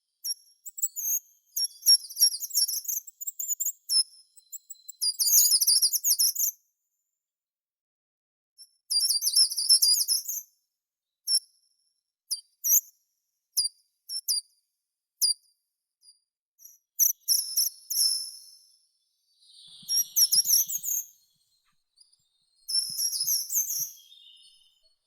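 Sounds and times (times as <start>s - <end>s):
songbirds chirping: 19.2s - 25.0s.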